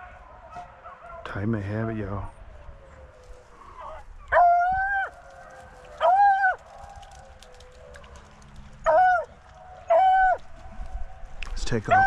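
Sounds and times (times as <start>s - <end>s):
dog baying howls: 2.8s - 8.2s, 8.8s - 10.8s.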